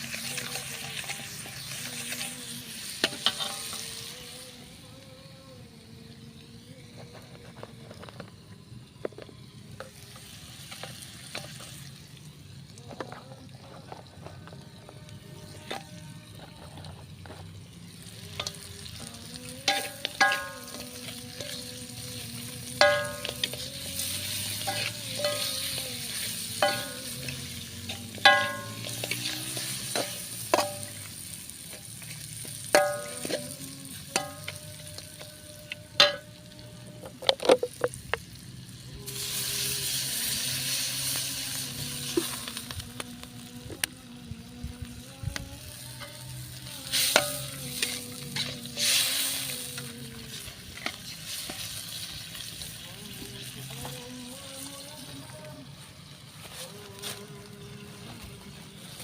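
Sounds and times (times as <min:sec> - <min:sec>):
meat sizzling in a pan: 0:00.0 - 0:05.0, 0:08.9 - 0:12.9, 0:16.3 - 0:37.0, 0:37.7 - 0:43.9, 0:45.0 - 0:58.1
metal spatula clinking on pan: 0:19.7 - 0:20.9, 0:27.9 - 0:31.0.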